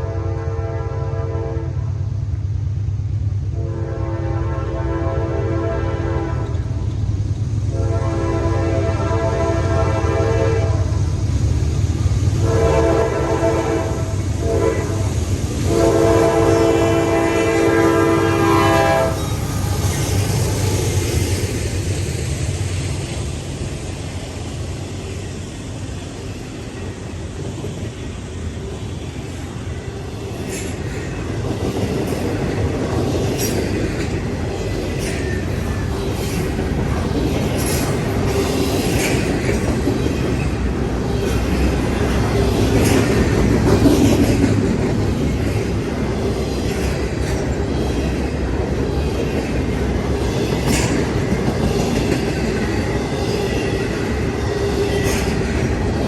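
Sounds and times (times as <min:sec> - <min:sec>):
train horn blasts: 0:00.0 - 0:01.9, 0:03.5 - 0:06.8, 0:07.7 - 0:11.0, 0:12.4 - 0:19.4
train rumbling past: 0:00.0 - 0:56.0
wheels clicking over rail joints: 0:30.2 - 0:56.0.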